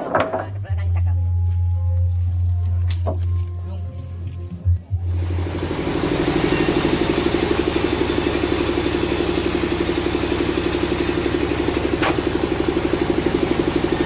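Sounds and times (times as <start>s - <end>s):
engine idling: 5.0s - 14.0s.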